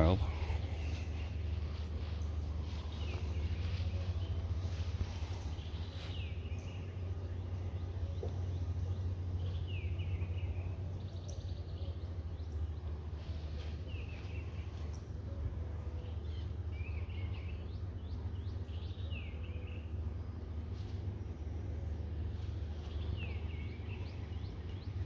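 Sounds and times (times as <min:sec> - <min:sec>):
low rumble: 0:00.0 - 0:13.2.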